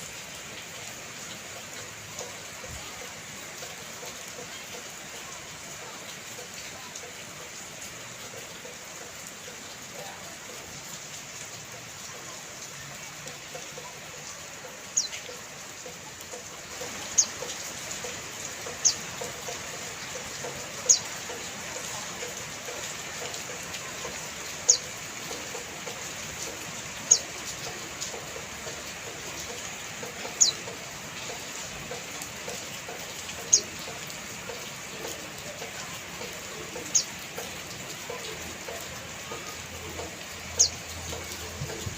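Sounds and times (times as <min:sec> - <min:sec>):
rain hiss: 0:00.0 - 0:41.9
bird chirping: 0:40.6 - 0:40.8.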